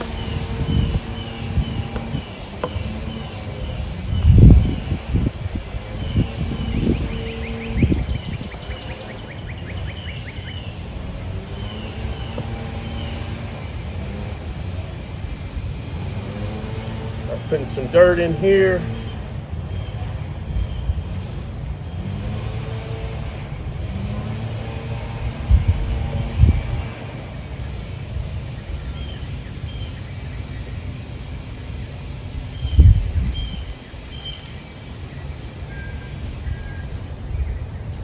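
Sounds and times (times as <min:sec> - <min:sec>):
songbird trilling and chirping: 0:00.0 - 0:23.6, 0:24.2 - 0:38.0
distant engine hum: 0:00.0 - 0:38.0
steady low rumble: 0:00.0 - 0:38.0.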